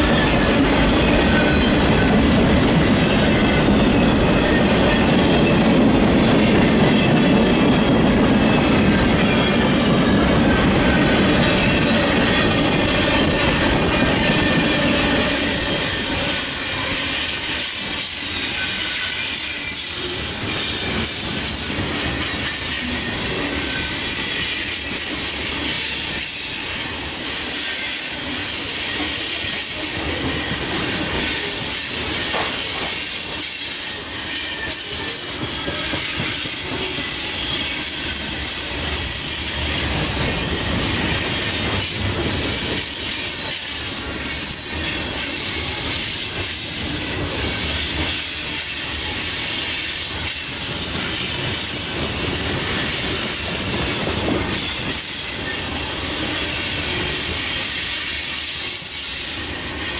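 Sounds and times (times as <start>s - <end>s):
high wheel squeals: 0.0s - 2.3s, 22.1s - 50.2s, 54.5s - 59.9s
train wheels rumbling on rail: 0.0s - 59.9s.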